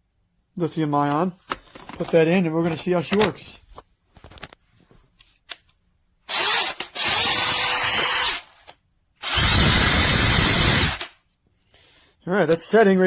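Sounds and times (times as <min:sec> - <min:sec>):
power drill motor whine: 0:06.3 - 0:08.6, 0:09.2 - 0:11.1.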